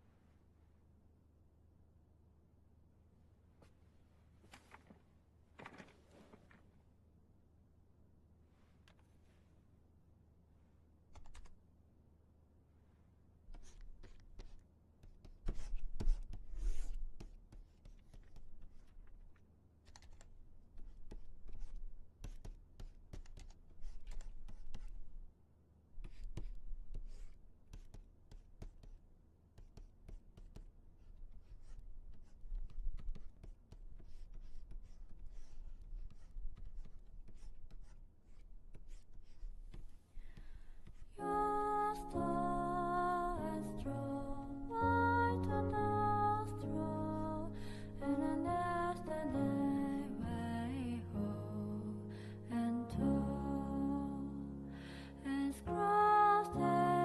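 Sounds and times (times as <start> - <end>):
soft melodic music: 41.2 - 57.0.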